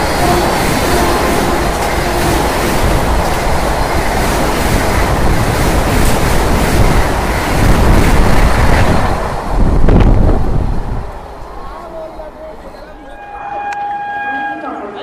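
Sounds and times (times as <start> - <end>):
train passing at speed: 0.0 - 13.5
rush of air: 2.7 - 11.6.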